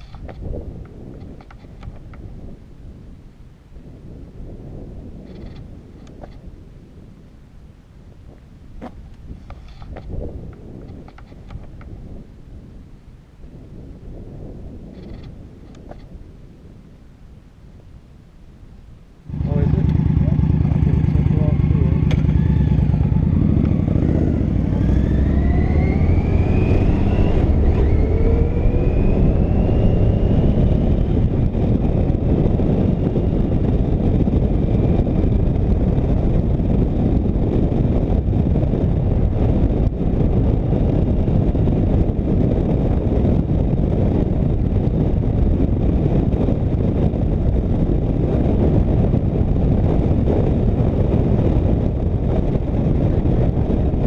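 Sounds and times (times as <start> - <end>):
wind noise: 0.0 - 54.0
road noise: 19.1 - 54.0
motorcycle engine accelerating: 19.3 - 54.0.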